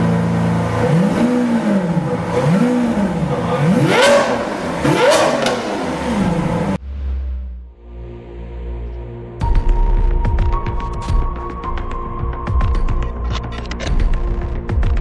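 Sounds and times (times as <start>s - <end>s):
car engine throttle blips: 0.0s - 7.8s.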